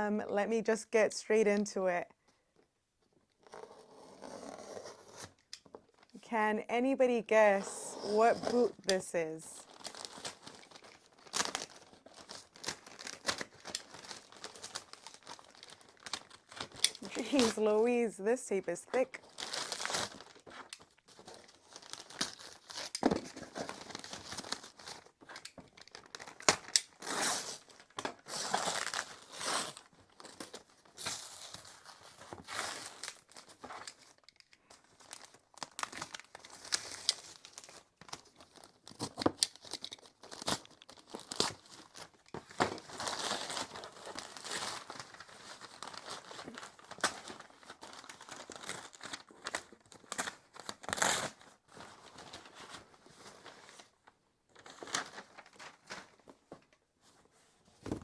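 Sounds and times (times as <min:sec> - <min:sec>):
packaging crinkling: 0:09.6 - 0:17.6, 0:19.2 - 0:53.9
packing tape tearing: 0:09.6 - 0:17.6, 0:19.2 - 0:51.5.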